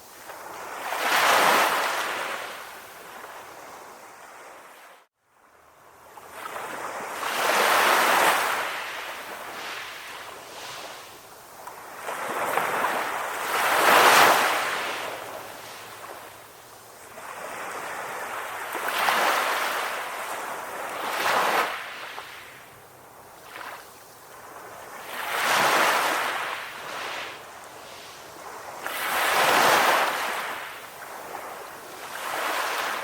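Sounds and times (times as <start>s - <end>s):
ocean waves breaking: 24.4s - 33.0s.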